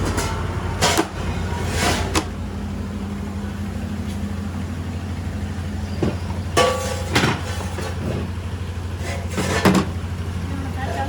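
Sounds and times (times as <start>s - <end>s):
truck engine rumbling: 0.0s - 11.0s
short clanks: 5.8s - 8.4s.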